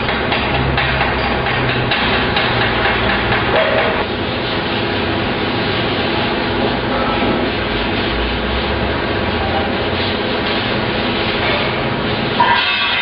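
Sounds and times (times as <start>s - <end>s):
rapid metal clattering and knocking: 0.0s - 4.0s
machinery running: 0.0s - 13.0s.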